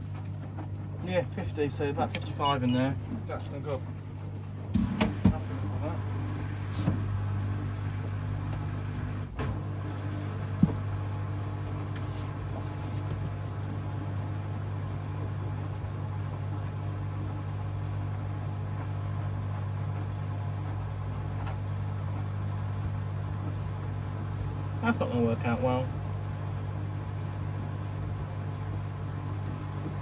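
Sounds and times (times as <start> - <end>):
washing machine humming: 0.0 - 30.0.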